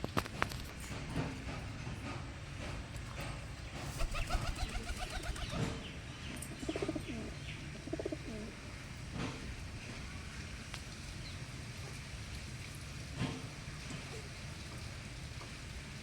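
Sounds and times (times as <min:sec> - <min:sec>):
birds chirping: 0:03.8 - 0:08.5
low wavering bird calls: 0:03.9 - 0:05.9.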